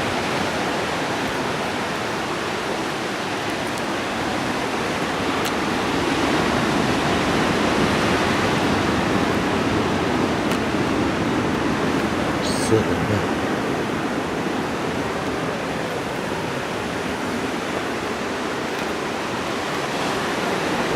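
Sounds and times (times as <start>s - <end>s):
ocean surf breaking: 0.0s - 20.9s.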